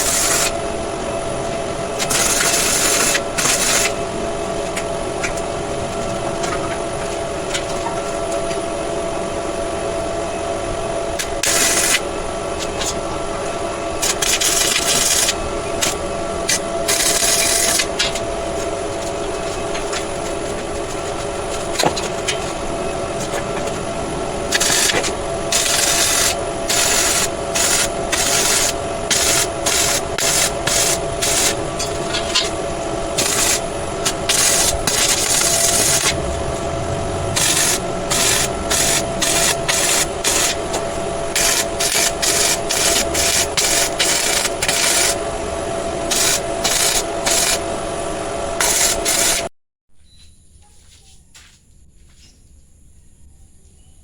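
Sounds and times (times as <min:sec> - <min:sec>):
angle grinder grinding steel: 0:14.0 - 0:45.2, 0:46.0 - 0:47.6.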